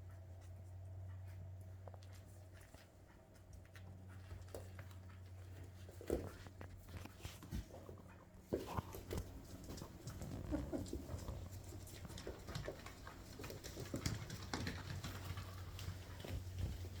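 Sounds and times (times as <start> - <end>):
claws ticking on wooden floor: 8.9 - 17.0.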